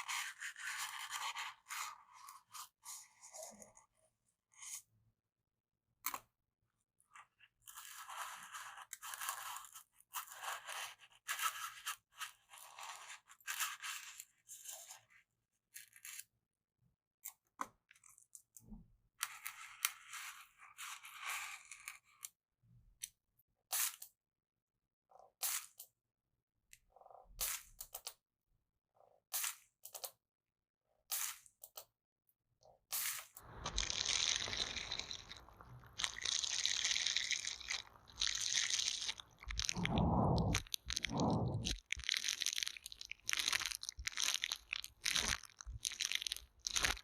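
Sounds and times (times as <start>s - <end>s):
stick scraping a microphone: 39.0s - 41.9s.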